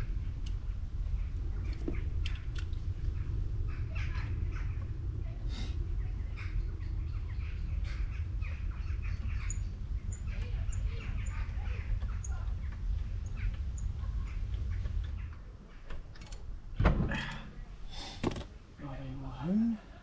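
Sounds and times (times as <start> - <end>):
small birds chirping: 0.0 - 16.0
steady low rumble: 0.0 - 20.0.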